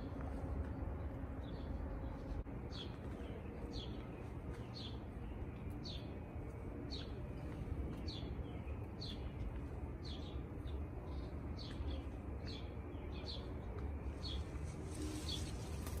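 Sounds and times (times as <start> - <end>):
low rumble: 0.0 - 4.4
bird chirping: 0.0 - 16.0.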